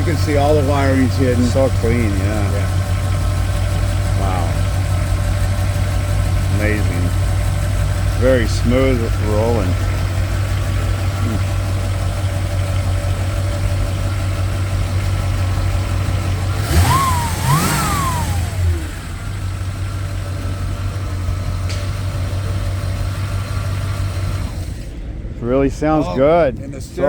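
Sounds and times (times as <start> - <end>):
engine revving: 0.0 - 24.9
car engine idling: 0.0 - 27.0.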